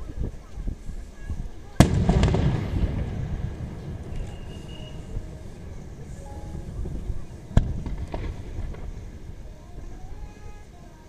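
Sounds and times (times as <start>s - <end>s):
firework bangs: 1.8s - 10.2s.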